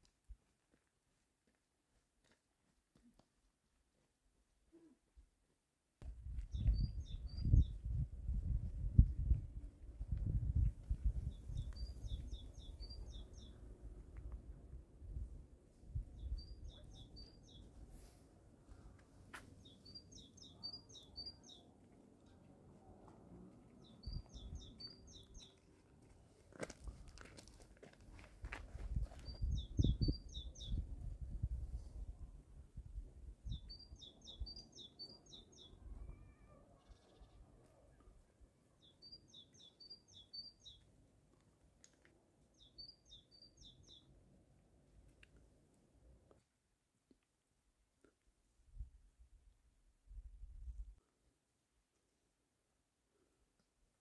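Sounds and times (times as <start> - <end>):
small bird chirping: 6.5 - 7.8, 11.2 - 13.6, 19.6 - 21.8, 23.8 - 25.6, 38.8 - 40.9, 42.6 - 44.1
small songbird singing: 6.5 - 8.0, 11.2 - 13.6, 16.1 - 17.7, 19.6 - 21.8, 23.8 - 25.6, 29.2 - 30.9, 33.4 - 37.5, 38.8 - 40.9, 42.5 - 44.1.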